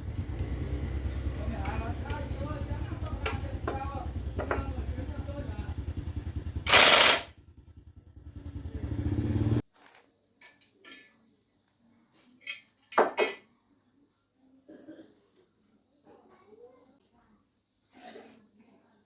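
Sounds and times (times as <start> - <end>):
small gasoline engine running: 0.0 - 9.6.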